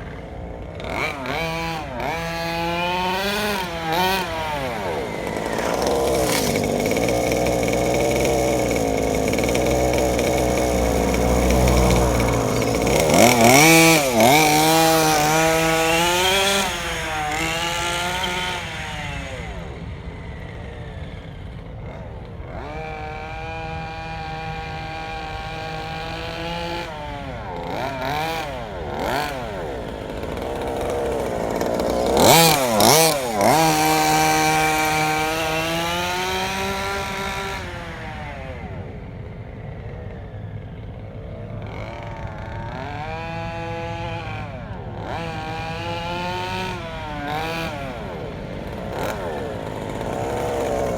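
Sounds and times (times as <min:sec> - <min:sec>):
small two-stroke engine buzzing: 0:00.0 - 0:50.9.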